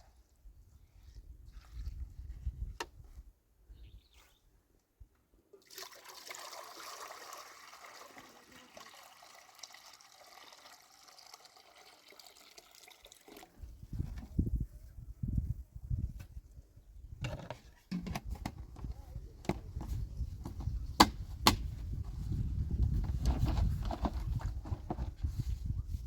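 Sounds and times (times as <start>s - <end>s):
water pouring trickle: 5.6s - 13.6s.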